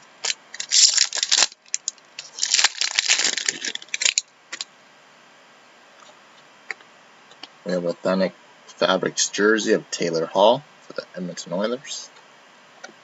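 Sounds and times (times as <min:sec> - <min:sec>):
cards and packaging crinkling: 0:00.2 - 0:04.6.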